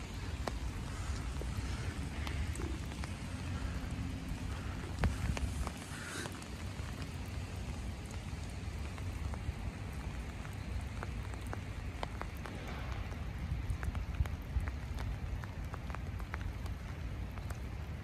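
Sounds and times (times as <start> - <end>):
light rain falling: 0.0 - 18.0
low rumble: 12.0 - 15.3.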